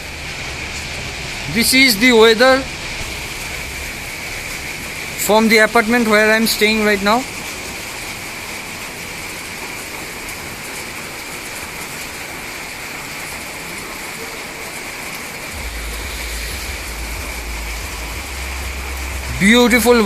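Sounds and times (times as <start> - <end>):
low rumble: 0.0 - 6.1, 15.5 - 20.0
steady rain falling: 0.0 - 20.0.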